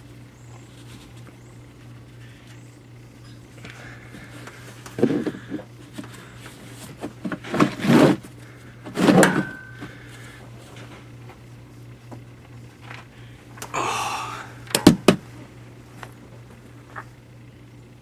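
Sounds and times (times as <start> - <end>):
steady low hum: 0.0 - 18.0
loud clunks and scrapes: 6.8 - 8.3, 8.9 - 10.0.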